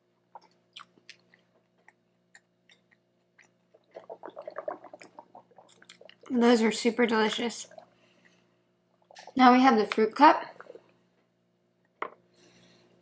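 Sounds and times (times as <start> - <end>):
wet mouth clicks: 0.4 - 6.2.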